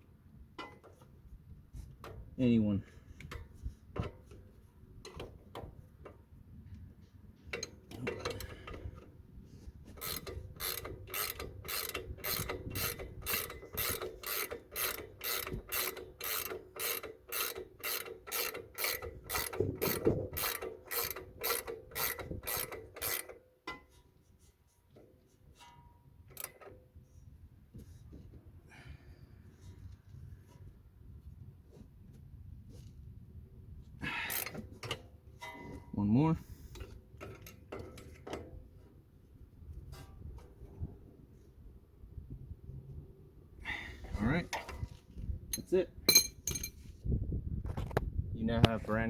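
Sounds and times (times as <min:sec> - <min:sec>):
ratchet wrench clicking: 0:10.0 - 0:23.4, 0:34.3 - 0:35.0.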